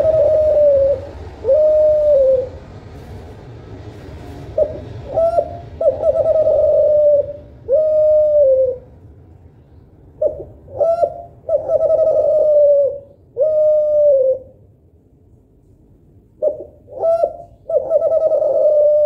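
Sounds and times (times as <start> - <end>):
dove cooing: 0.0 - 2.7, 4.5 - 9.0, 10.2 - 14.6, 16.4 - 19.0.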